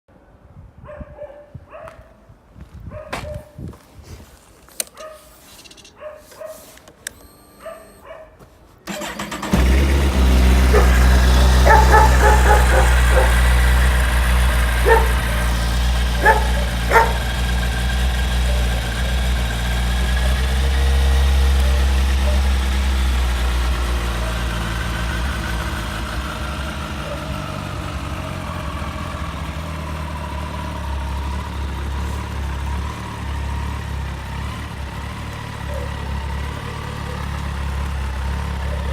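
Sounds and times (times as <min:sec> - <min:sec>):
dog barking: 0:00.8 - 0:02.2, 0:02.9 - 0:03.6, 0:05.0 - 0:05.3, 0:06.0 - 0:06.7, 0:07.6 - 0:08.4, 0:10.7 - 0:11.0, 0:11.6 - 0:13.6, 0:14.6 - 0:15.5, 0:16.1 - 0:17.4, 0:18.4 - 0:19.2, 0:21.6 - 0:22.5, 0:27.0 - 0:27.3, 0:35.6 - 0:37.3, 0:38.6 - 0:38.9
motorcycle engine starting and idling: 0:08.8 - 0:38.9.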